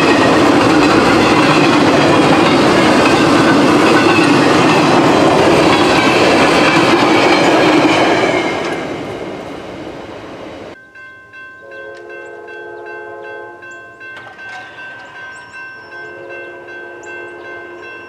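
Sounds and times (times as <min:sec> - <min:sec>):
railroad crossing bell: 0:00.0 - 0:05.0, 0:10.7 - 0:18.0
passing train rumble: 0:00.0 - 0:18.0
train horn chord: 0:11.6 - 0:14.3, 0:15.9 - 0:18.0.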